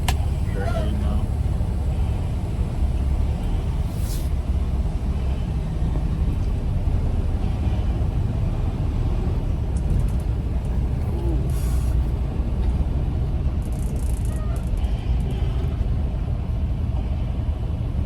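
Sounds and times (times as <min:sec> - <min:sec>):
truck engine rumble: 0:00.0 - 0:18.0
brief hiss: 0:03.9 - 0:04.3.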